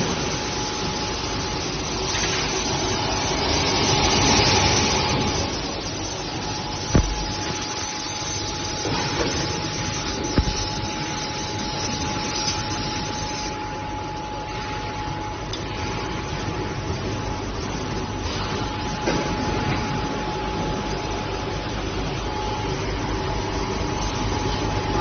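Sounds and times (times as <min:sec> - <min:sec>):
short knocks: 0:07.0 - 0:07.6, 0:10.4 - 0:10.8.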